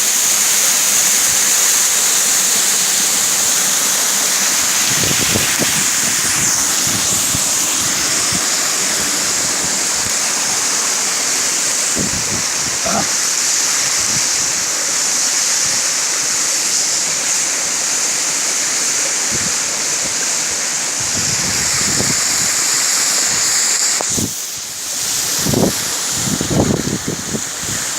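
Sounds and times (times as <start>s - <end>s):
waterfall rushing: 0.0s - 27.9s
wind buffeting microphone: 4.1s - 14.6s, 21.0s - 27.9s.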